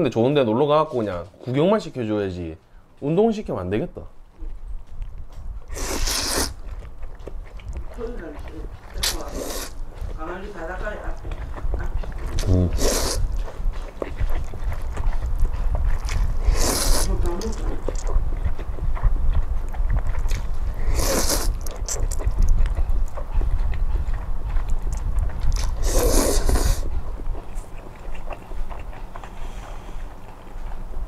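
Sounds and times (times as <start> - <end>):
faint chewing: 4.3 - 31.0
noodles being slurped: 5.7 - 6.6, 8.9 - 9.8, 12.3 - 13.3, 16.0 - 18.0, 20.2 - 22.5, 25.5 - 26.8
low rumble: 11.1 - 30.0.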